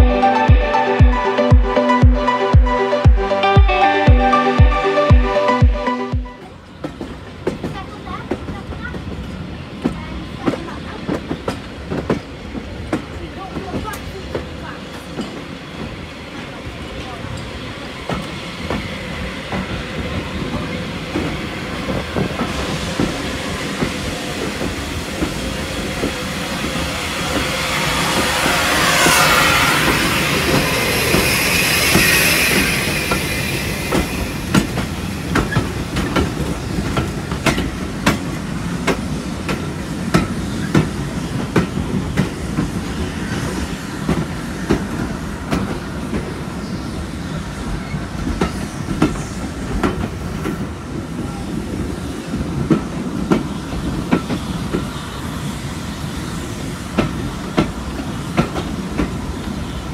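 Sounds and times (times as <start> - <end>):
train wheels rumbling on track: 6.6 - 59.9
rail joints clacking: 19.5 - 43.1.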